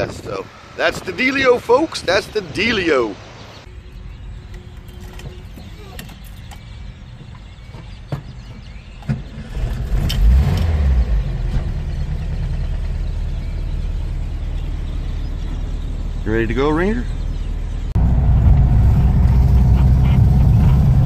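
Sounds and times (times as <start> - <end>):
engine starting and idling: 9.2 - 13.5.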